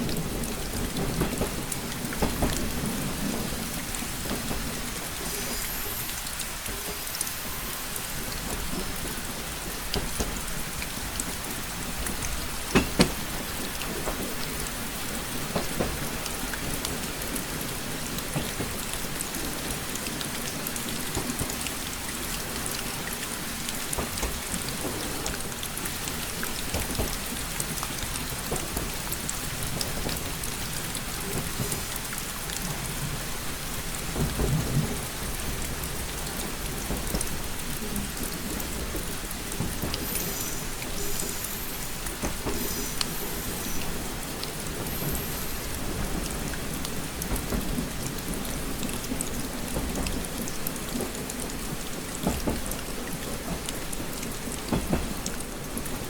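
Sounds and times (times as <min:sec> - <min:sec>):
rain pattering on a window: 0:00.0 - 0:56.0.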